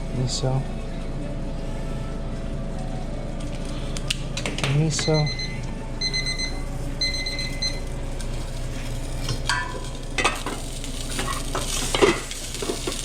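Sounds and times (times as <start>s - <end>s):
steady low hum: 0.0s - 12.9s
timer beeping: 5.0s - 7.8s
food sizzling in a pan: 7.8s - 13.0s
utensils and cookware clattering: 8.2s - 13.0s.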